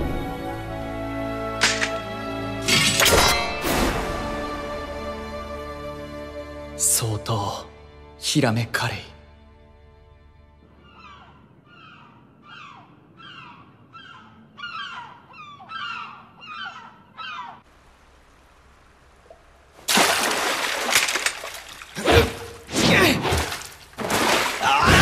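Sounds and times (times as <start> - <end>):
bird calling: 10.6 - 17.7
loud splashing water: 19.4 - 25.0.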